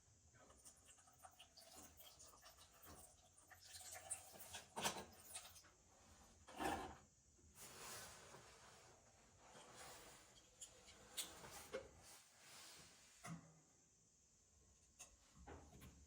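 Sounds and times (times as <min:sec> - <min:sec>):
faint rubbing and scraping by hand: 0:07.6 - 0:13.3.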